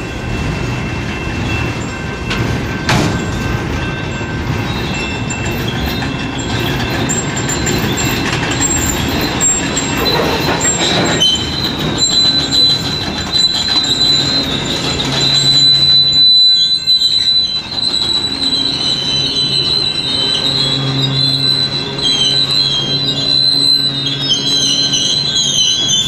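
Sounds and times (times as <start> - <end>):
steel wheels squealing: 0.0 - 26.0
train cars rumbling and clattering: 0.0 - 26.0.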